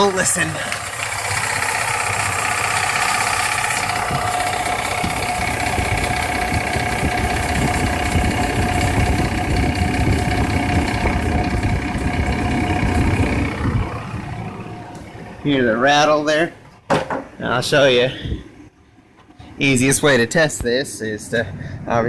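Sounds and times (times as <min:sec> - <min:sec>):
fast rattle from compressor: 0:00.0 - 0:15.5
engine running: 0:00.0 - 0:16.8.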